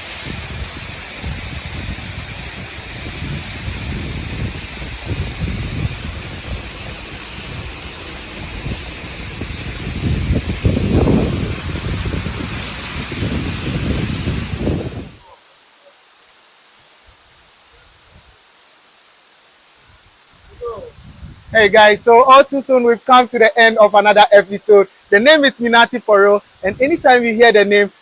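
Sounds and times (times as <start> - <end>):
wind buffeting microphone: 0.0 - 15.2, 20.4 - 22.4
waterfall rushing hiss: 0.0 - 28.0.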